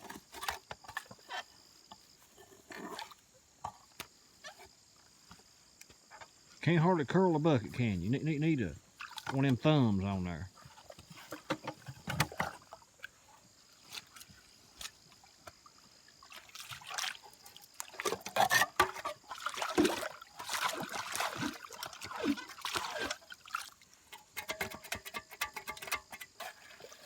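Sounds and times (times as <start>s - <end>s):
water sloshing and splashing: 8.9s - 24.8s, 26.4s - 27.0s.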